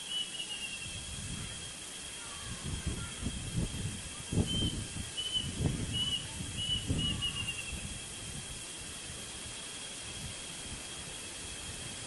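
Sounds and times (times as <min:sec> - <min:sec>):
bird whistling calls: 0:00.0 - 0:01.1, 0:04.4 - 0:07.9
steady high hum: 0:00.0 - 0:12.0
low rumbling noise: 0:00.5 - 0:12.0.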